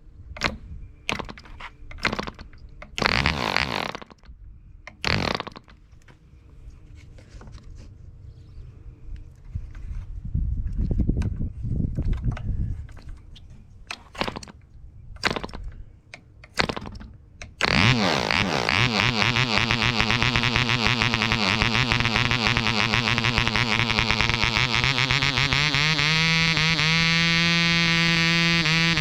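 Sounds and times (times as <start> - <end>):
sharp knocks: 0.4 - 4.1
model airplane engine running: 3.0 - 4.2, 17.6 - 29.0.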